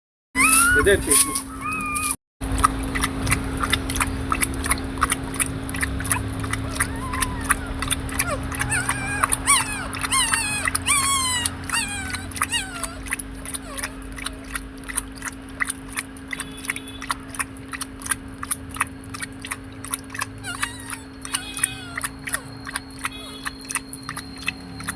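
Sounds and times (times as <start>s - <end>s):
puppies whining: 0.4s - 2.2s, 5.8s - 15.2s, 19.9s - 24.9s
constant low hum: 0.5s - 24.9s.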